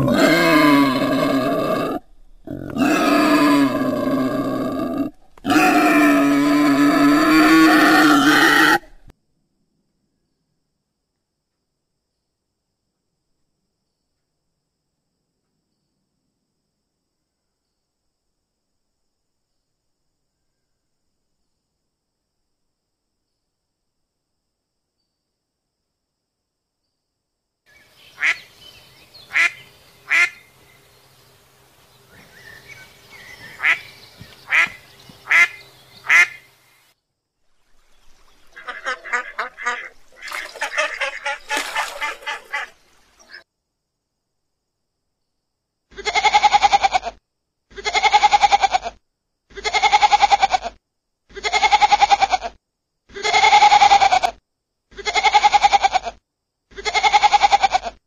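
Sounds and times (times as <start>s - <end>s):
duck quacking: 28.2s - 28.5s, 29.3s - 30.4s, 33.5s - 33.9s, 34.5s - 36.5s, 38.5s - 43.4s
geese honking: 33.4s - 33.9s, 34.5s - 36.4s, 38.5s - 42.8s
goat kids bleating: 46.0s - 47.1s, 47.7s - 52.5s, 53.2s - 54.3s, 55.0s - 56.1s, 56.8s - 58.0s.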